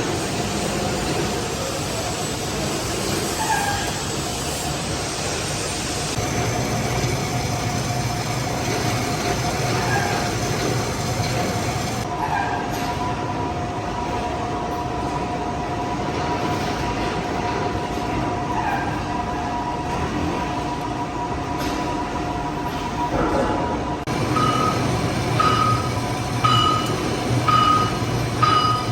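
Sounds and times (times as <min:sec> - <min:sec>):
metal lathe running: 0:04.0 - 0:12.1, 0:24.0 - 0:28.9
high whine: 0:24.0 - 0:28.9.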